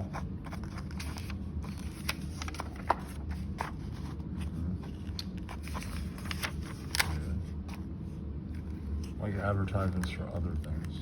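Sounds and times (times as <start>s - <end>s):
low steady hum: 0.0s - 11.0s
paper pages turning: 0.1s - 7.9s.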